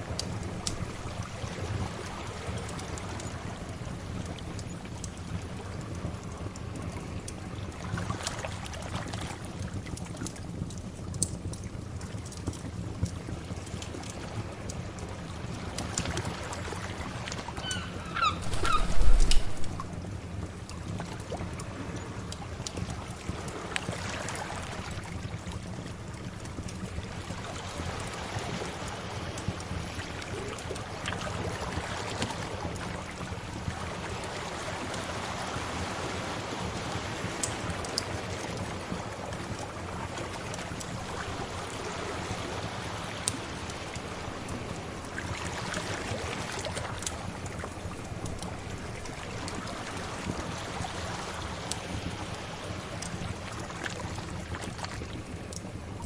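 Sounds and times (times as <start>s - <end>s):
wood fire crackling: 0.0s - 28.1s, 37.1s - 42.1s, 46.8s - 50.9s
sea waves washing: 15.4s - 20.1s, 27.0s - 55.4s.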